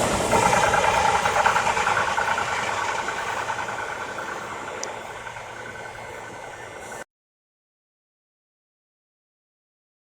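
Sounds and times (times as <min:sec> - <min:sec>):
electric train running: 0:00.0 - 0:07.0
steady high tone: 0:00.0 - 0:07.1.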